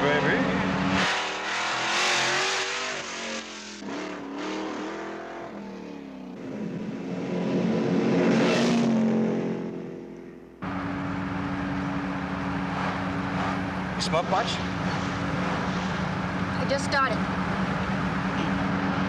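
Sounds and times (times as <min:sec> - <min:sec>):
car engine revving: 0:00.0 - 0:19.0
steady engine drone: 0:10.4 - 0:19.0.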